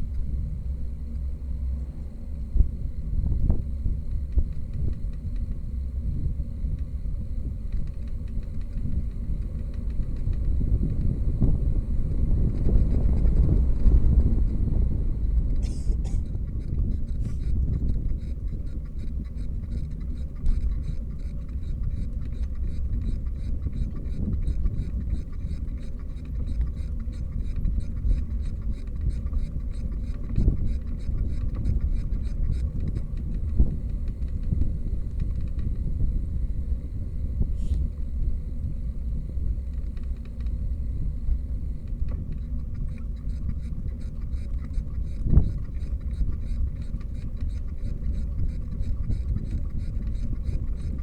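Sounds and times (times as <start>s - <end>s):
faint regular ticks: 7.6s - 11.7s, 15.6s - 35.9s, 39.4s - 51.0s.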